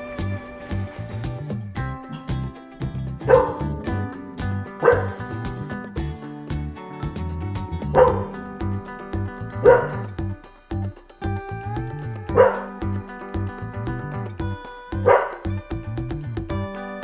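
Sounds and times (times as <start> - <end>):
background music with bass line: 0.0 - 17.0
dog barking: 4.8 - 5.1.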